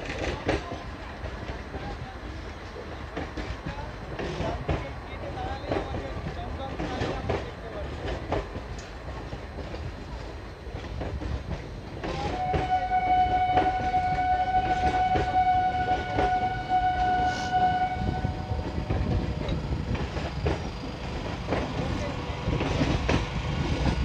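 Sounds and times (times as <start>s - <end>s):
electric train rumbling past: 0.0s - 24.0s
train horn long note: 12.2s - 19.3s.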